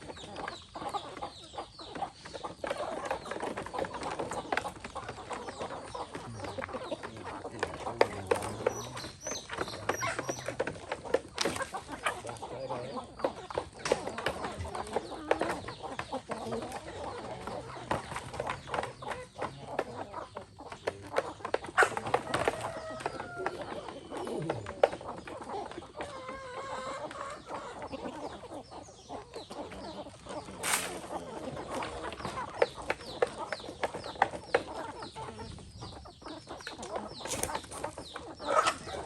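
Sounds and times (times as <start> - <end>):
chickens clucking: 0.0 - 39.0
short sharp clicks and rustles: 30.6 - 31.1.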